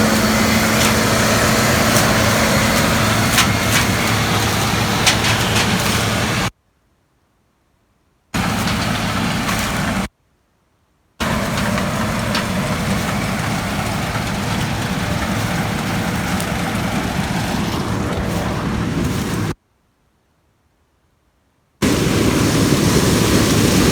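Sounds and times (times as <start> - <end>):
combine harvester droning: 0.0 - 6.5, 8.4 - 10.1, 11.2 - 19.6, 21.8 - 23.9.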